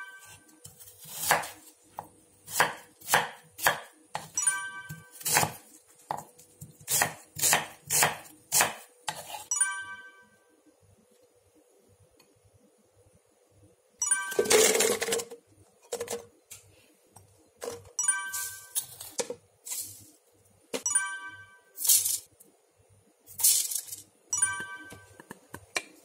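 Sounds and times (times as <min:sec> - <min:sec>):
knife chopping on wooden board: 0:01.0 - 0:04.3, 0:05.2 - 0:09.4
short ringing chime: 0:18.0 - 0:18.9.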